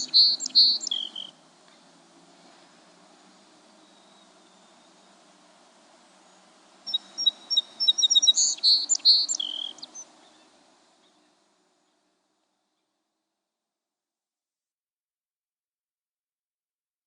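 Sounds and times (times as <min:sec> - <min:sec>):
sparrow singing: 0:00.0 - 0:01.4, 0:03.7 - 0:05.2, 0:06.2 - 0:12.0.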